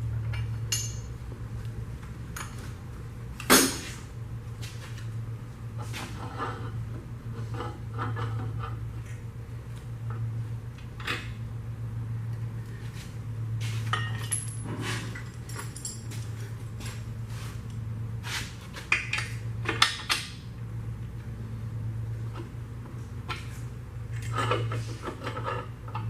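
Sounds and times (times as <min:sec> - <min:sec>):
steady low hum: 0:00.0 - 0:26.0
metal tools clinking: 0:13.9 - 0:16.4.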